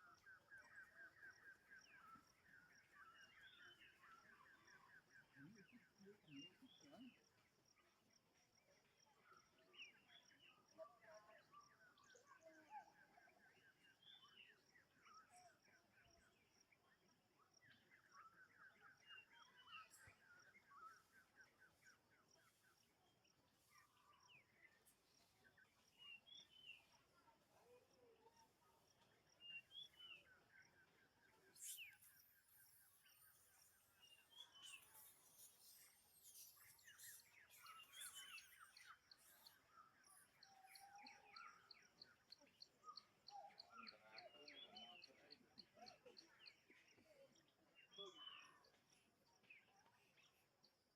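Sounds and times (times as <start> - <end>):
birds chirping: 17.7 - 50.4.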